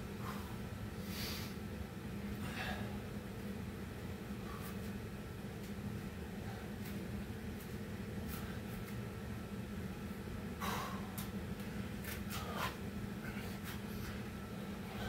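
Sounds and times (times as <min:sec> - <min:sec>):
low steady hum: 0:00.0 - 0:15.0
heavy breathing: 0:10.6 - 0:11.2.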